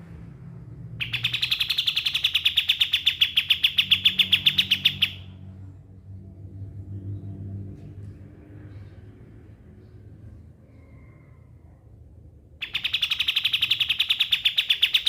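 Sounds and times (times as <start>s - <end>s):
faint low hum: 0.0s - 15.0s
bird singing rapid trill: 1.0s - 5.4s, 12.6s - 15.0s.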